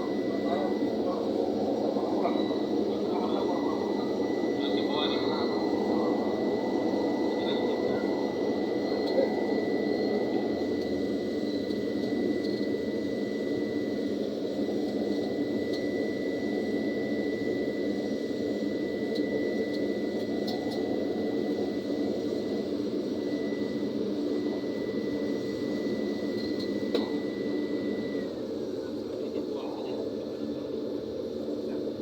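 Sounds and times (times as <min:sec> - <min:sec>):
turboprop engine droning: 0:00.0 - 0:32.0.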